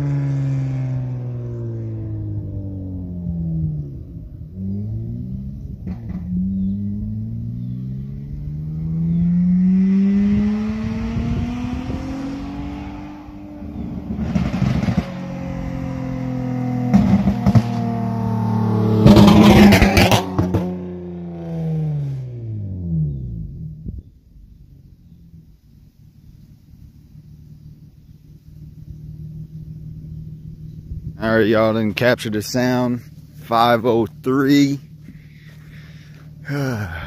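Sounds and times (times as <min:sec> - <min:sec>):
car engine accelerating past: 0:00.0 - 0:25.6.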